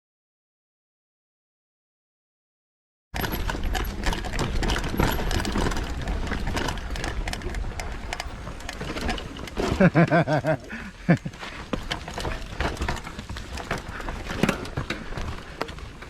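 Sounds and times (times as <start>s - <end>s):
mountain bike rattling over rocks: 3.2s - 16.0s.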